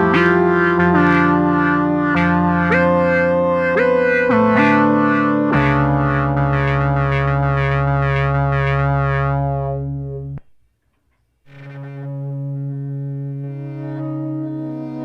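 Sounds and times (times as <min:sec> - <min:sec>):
synthesizer held note: 0:00.0 - 0:09.9.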